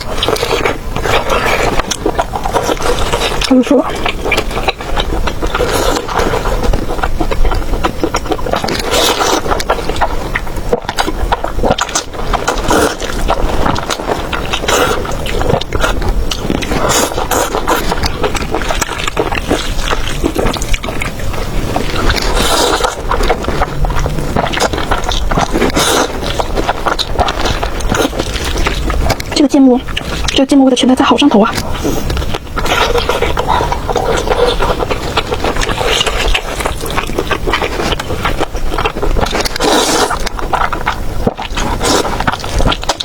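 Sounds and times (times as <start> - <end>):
sticky mouth clicks and smacks: 0.0 - 30.5
wet chewing and slurping: 0.0 - 43.0.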